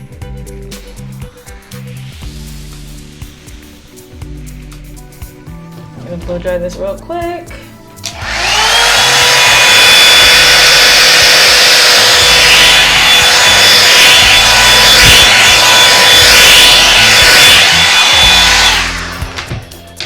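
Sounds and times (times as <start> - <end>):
hair dryer brush whining: 8.0 - 20.0.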